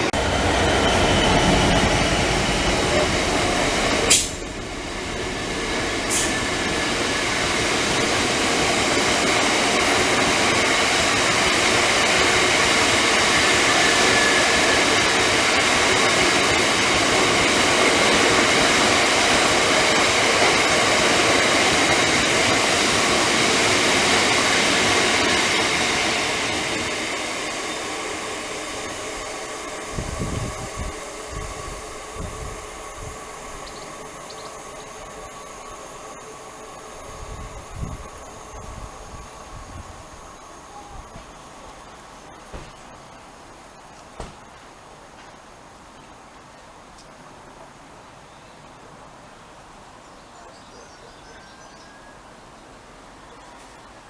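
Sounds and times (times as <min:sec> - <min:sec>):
train rail rumble with whine: 0:00.0 - 0:45.8.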